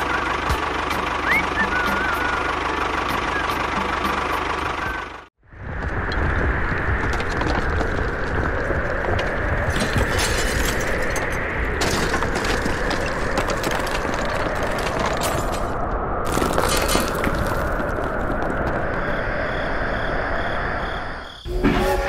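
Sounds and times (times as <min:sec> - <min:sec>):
rumble of falling earth: 0:05.4 - 0:22.0
stone cracking and breaking: 0:07.1 - 0:18.9.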